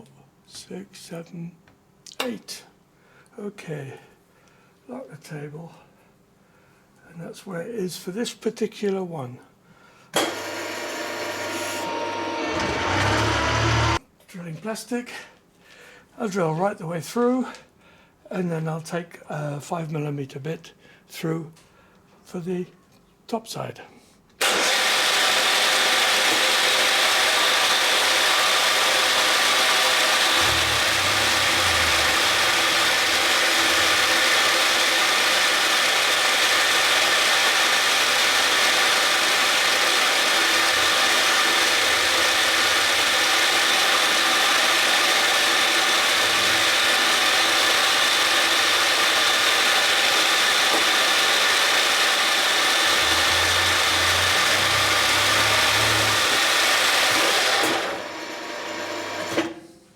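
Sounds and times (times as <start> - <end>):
milling machine spindle whine: 10.2 - 14.0, 26.2 - 57.9.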